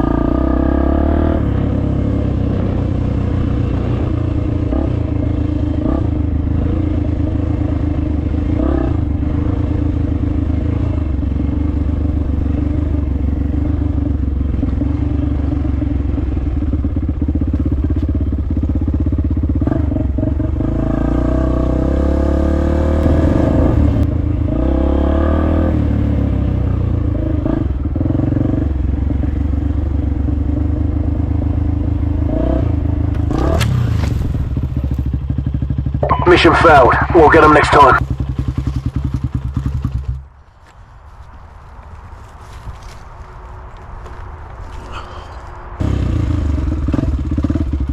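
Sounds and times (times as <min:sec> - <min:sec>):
dirt bike engine: 0:31.4 - 0:40.9.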